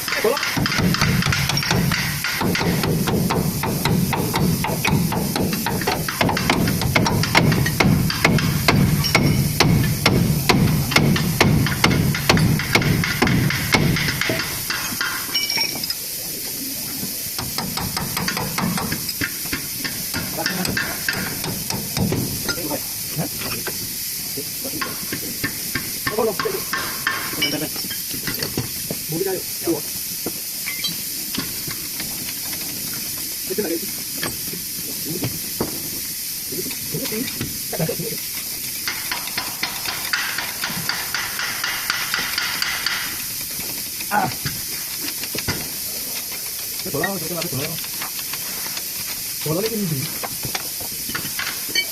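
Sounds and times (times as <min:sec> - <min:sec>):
fast hammer strikes: 0:00.0 - 0:15.5, 0:17.4 - 0:22.8, 0:24.7 - 0:28.6, 0:38.8 - 0:43.8
steady hiss: 0:00.0 - 0:51.9.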